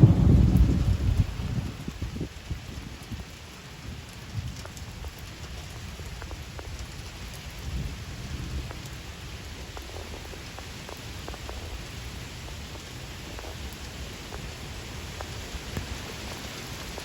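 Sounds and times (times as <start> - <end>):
low rumble: 0.0 - 2.2
rain falling: 0.0 - 17.0.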